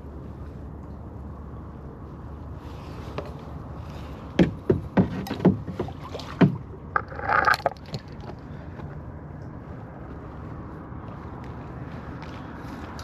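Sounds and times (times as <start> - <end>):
kayak and paddle knocking: 4.4 - 8.4
water splash: 5.1 - 8.3.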